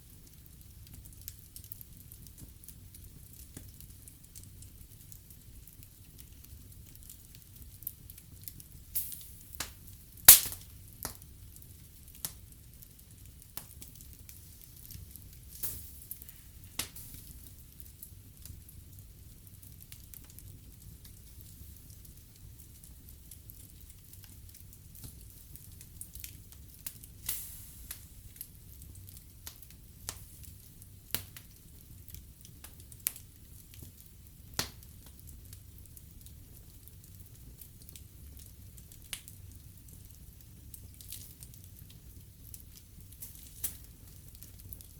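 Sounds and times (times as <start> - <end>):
wood fire crackling: 0.0 - 44.9
sharp pops of fire: 6.4 - 18.6, 23.4 - 35.8, 37.5 - 44.9.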